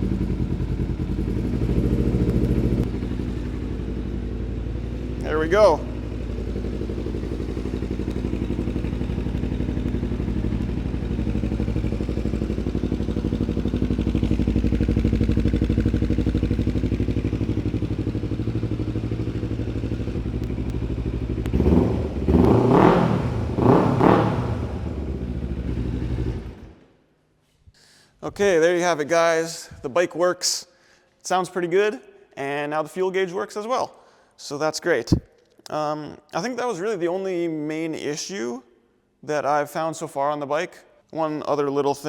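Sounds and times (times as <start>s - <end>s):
motorcycle engine idling: 0.0s - 26.8s
motorcycle engine revving: 0.0s - 26.8s.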